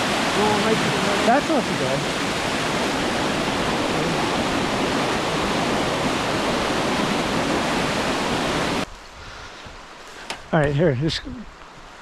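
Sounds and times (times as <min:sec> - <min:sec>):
water rushing over rocks: 0:00.0 - 0:08.9.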